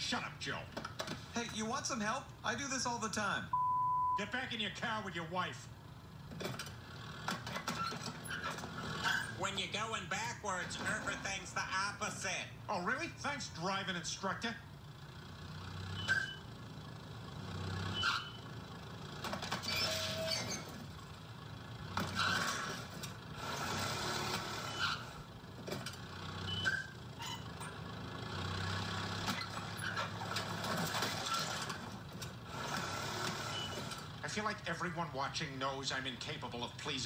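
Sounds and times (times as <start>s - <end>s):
car engine revving: 14.9s - 19.4s.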